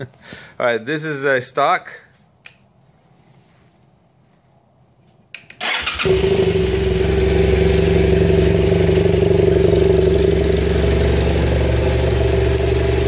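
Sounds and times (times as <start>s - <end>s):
electric starter cranking: 5.6s - 6.6s
motorcycle engine running: 6.0s - 13.0s.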